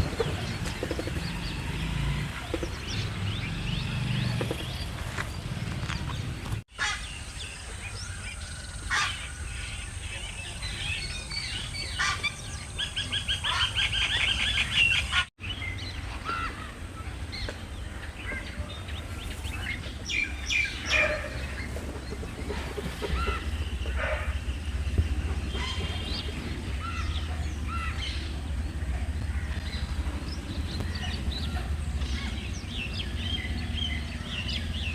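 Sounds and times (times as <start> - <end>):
fast repeated bird calls: 0.0 - 5.0
flock of birds calling: 0.0 - 34.9.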